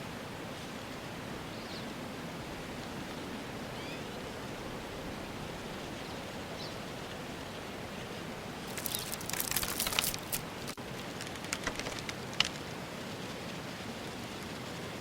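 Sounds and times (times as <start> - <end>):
outdoor ambience hiss: 0.0 - 15.0
sharp crackling clicks: 8.7 - 12.8.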